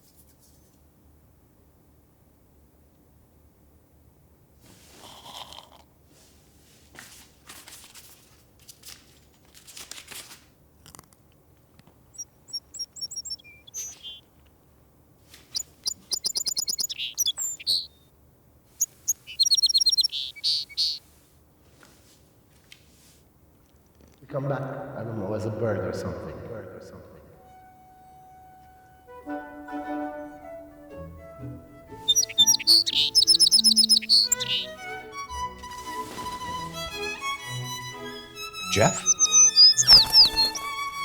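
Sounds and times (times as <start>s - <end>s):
soft rustling: 4.6s - 5.2s, 6.1s - 17.8s, 18.7s - 24.2s, 32.0s - 38.4s
songbird high trills: 12.1s - 14.3s, 15.4s - 18.0s, 18.8s - 21.0s, 31.8s - 35.2s, 38.0s - 41.0s.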